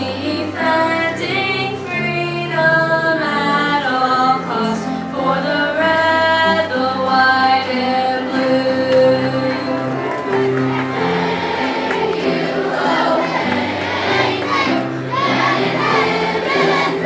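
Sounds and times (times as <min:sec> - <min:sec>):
children's choir singing: 0:00.0 - 0:17.0
instrumental accompaniment: 0:08.3 - 0:17.0.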